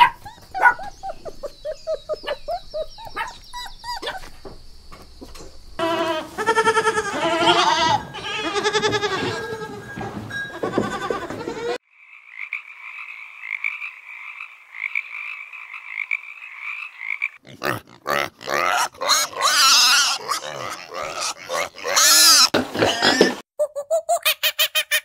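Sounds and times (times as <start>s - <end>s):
goats bleating: 5.8s - 11.8s
tree frog pulsed croaks: 11.9s - 17.4s
pig grunting and snuffling: 17.4s - 23.4s.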